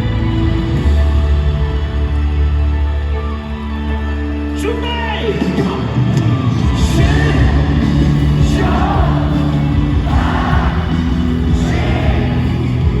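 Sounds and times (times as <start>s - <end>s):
pop-rock band playing: 0.0s - 13.0s
people shouting: 6.9s - 13.0s.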